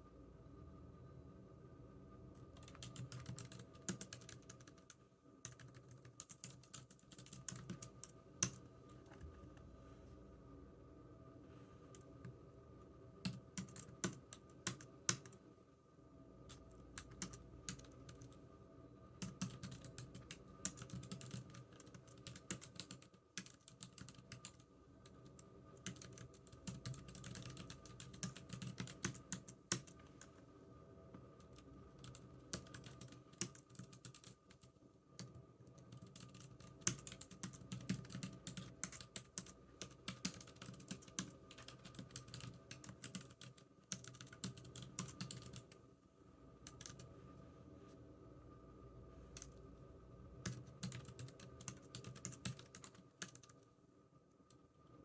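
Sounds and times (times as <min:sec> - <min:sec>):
keyboard typing: 0:02.5 - 0:09.6, 0:13.2 - 0:15.4, 0:16.5 - 0:18.4, 0:19.2 - 0:30.3, 0:31.4 - 0:45.8, 0:46.6 - 0:47.1, 0:50.4 - 0:53.6.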